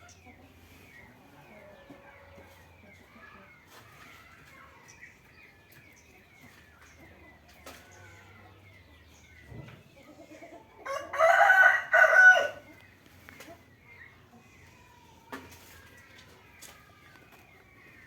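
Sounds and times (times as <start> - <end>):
rooster crowing: 10.8 - 12.6.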